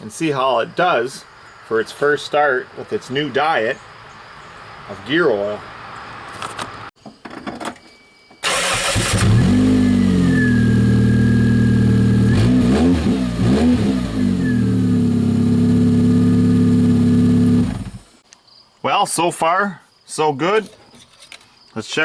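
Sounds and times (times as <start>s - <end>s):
car engine starting and revving: 8.4s - 18.1s.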